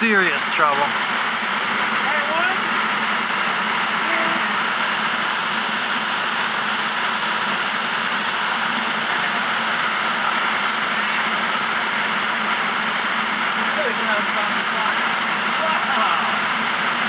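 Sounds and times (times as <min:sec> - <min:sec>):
flood water pouring down a drop: 0:00.1 - 0:17.0.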